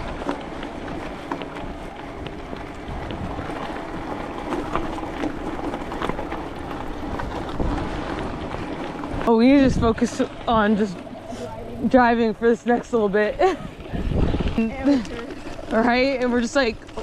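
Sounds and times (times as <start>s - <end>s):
bicycle tyres rumbling on path: 0.0s - 17.0s
wind buffeting microphone: 0.0s - 17.0s
small clicks and rattles: 14.4s - 17.0s.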